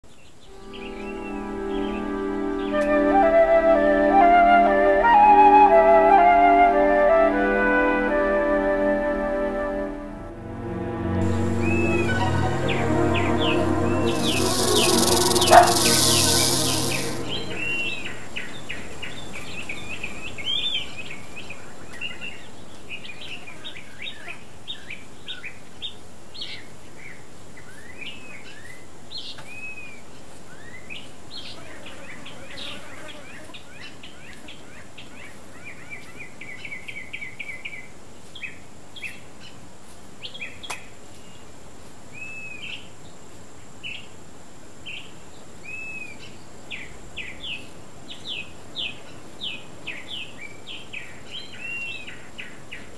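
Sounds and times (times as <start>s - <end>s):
faint high-pitched tone: 11.2s - 18.9s
bird trill: 11.3s - 18.7s
wild birds chirping: 11.3s - 21.1s.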